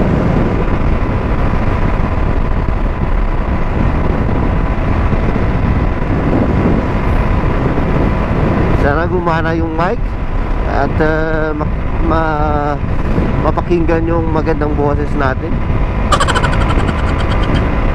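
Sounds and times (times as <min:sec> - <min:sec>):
wind noise on microphone: 0:00.0 - 0:17.9.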